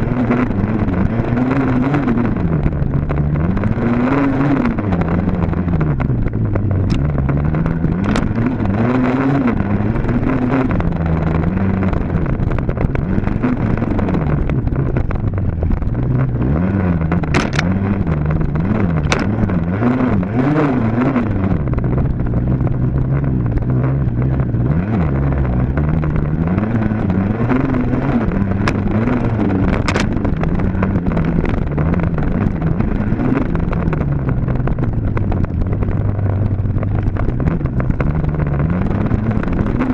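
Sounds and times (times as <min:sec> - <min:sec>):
sharp clicks: 0:17.2 - 0:17.7
dirt bike engine revving: 0:23.1 - 0:34.1.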